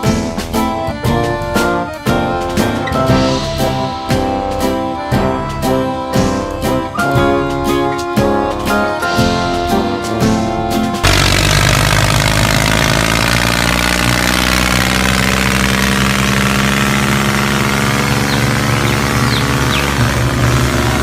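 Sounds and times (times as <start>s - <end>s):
guitar music: 0.0s - 21.0s
engine running steadily: 8.7s - 21.0s.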